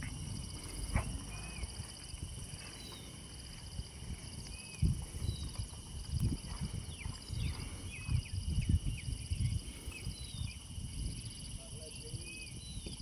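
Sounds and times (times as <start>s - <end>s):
low rumbling thumps: 0.0s - 11.2s
insects trilling: 0.0s - 13.0s
bird chirps: 2.7s - 3.2s.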